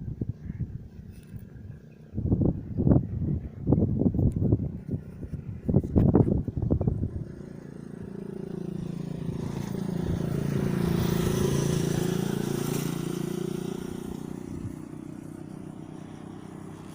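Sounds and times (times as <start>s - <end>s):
vehicle engine passing by: 5.0s - 16.9s.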